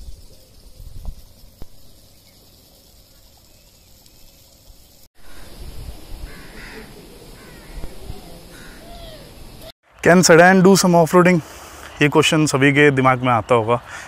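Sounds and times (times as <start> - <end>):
birds calling: 0.0 - 9.7
faint outdoor hiss: 0.0 - 14.0.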